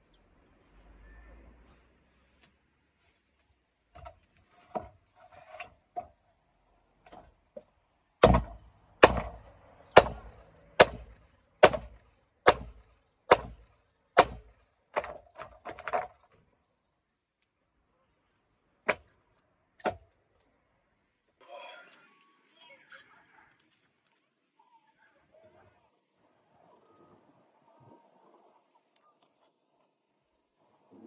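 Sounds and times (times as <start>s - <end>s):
axe blows splitting firewood: 8.2s - 9.4s, 10.0s - 13.6s.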